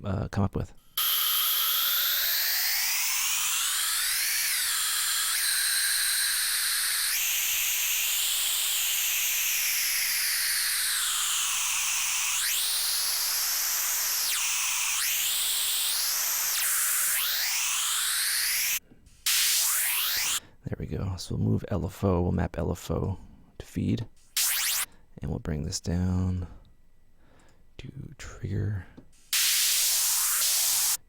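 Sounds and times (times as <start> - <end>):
phased white noise hiss: 1.0 - 20.4, 29.2 - 31.0.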